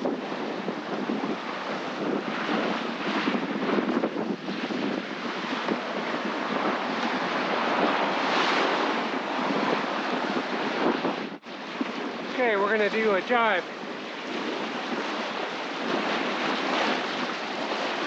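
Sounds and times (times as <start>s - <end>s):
sea water rushing: 0.0s - 18.0s
wind buffeting microphone: 0.0s - 18.0s.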